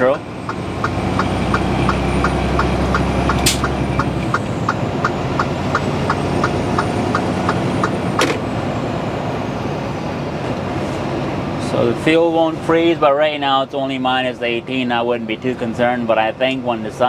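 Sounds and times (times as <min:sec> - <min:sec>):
truck engine and road drone: 0:00.0 - 0:17.0
rapid even ticking: 0:00.5 - 0:08.0
sharp clicks: 0:02.6 - 0:08.3.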